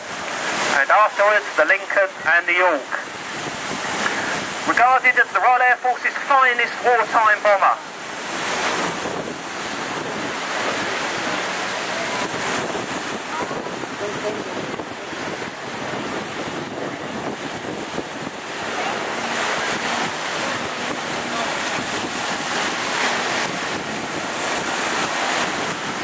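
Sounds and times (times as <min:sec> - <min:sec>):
wind buffeting microphone: 0:03.0 - 0:04.7, 0:07.9 - 0:26.0.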